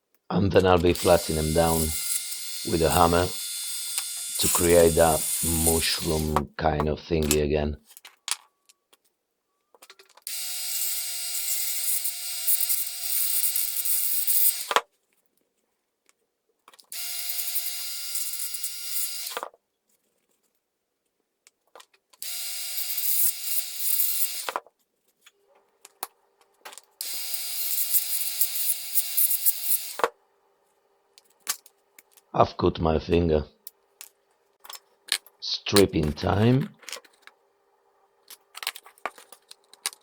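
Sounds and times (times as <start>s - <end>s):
electric grinder whining: 1.0s - 6.4s, 10.3s - 14.8s, 17.0s - 19.4s, 22.2s - 24.6s, 27.0s - 30.0s.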